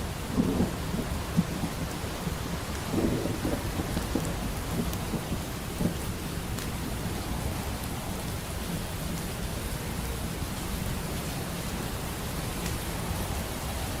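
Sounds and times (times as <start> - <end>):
steady rain: 0.0 - 14.0
wood fire crackles: 0.0 - 14.0
distant thunder: 0.2 - 6.1.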